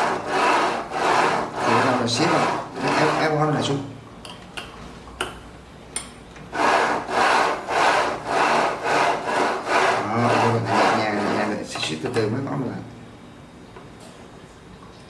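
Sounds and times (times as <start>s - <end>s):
carriage rubbing along rails: 0.0s - 3.4s, 6.5s - 11.8s.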